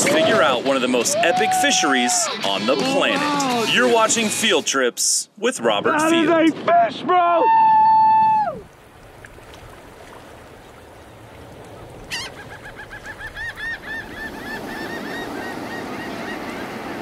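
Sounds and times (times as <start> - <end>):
surf washing: 0.0 - 4.7, 7.9 - 17.0
bird calling: 11.0 - 17.0.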